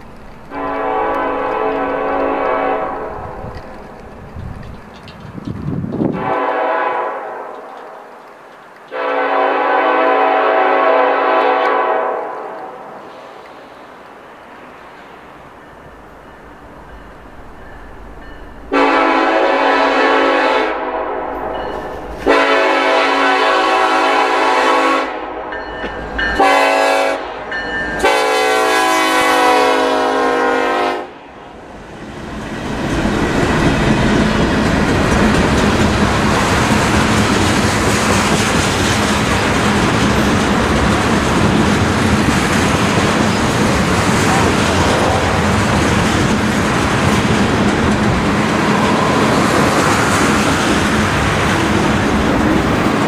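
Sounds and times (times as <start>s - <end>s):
train wheels on rails: 0.0s - 31.0s, 31.6s - 53.0s
locomotive horn blasts: 0.5s - 3.4s, 6.1s - 7.7s, 8.9s - 12.7s, 18.7s - 25.6s, 26.3s - 31.2s.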